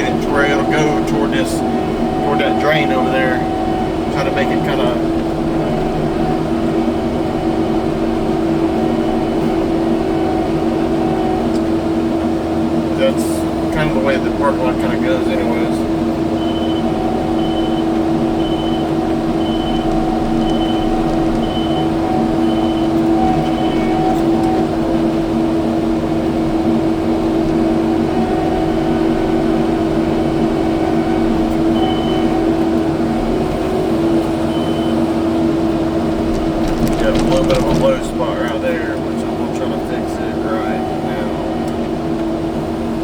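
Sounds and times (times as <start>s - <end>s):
reversing alarm beeping: 0.0s - 11.5s, 16.4s - 25.2s, 28.0s - 33.8s, 34.4s - 35.3s
diesel engine running: 0.0s - 43.0s.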